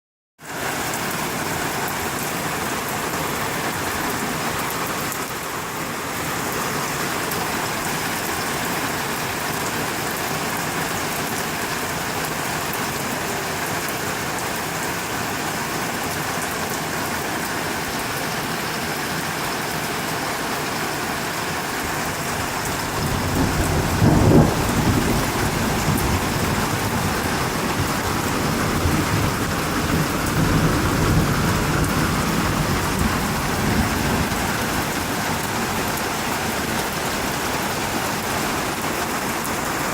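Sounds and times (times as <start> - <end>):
heavy rain falling: 0.4 - 39.9
low thunder rumbling: 22.2 - 36.8.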